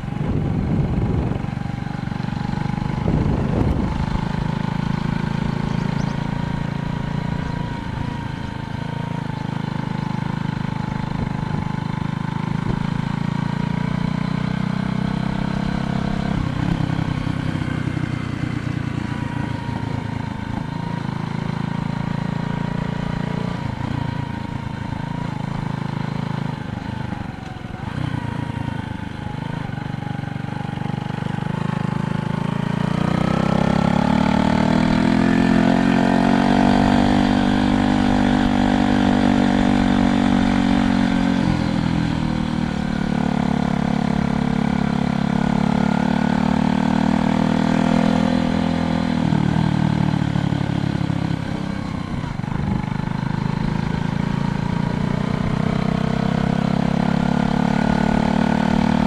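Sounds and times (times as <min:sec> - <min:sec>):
engine rising in pitch: 0:00.0 - 0:09.5, 0:26.6 - 0:59.0
vehicle engine running: 0:00.0 - 0:59.0.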